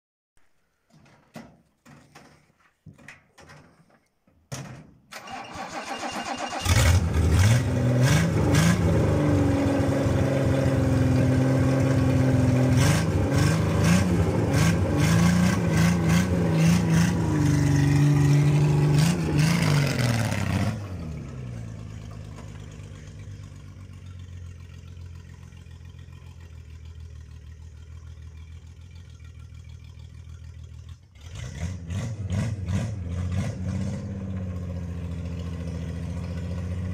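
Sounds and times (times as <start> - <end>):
engine cranking and starting: 5.1 - 8.0
engine revving: 5.3 - 23.3, 31.2 - 36.9.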